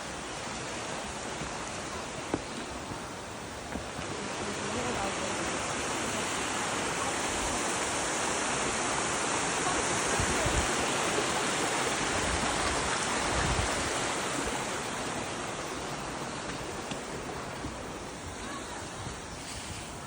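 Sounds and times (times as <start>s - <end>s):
flowing water rushing: 0.0s - 20.0s
wind rumble on microphone: 8.4s - 11.2s, 11.9s - 20.0s.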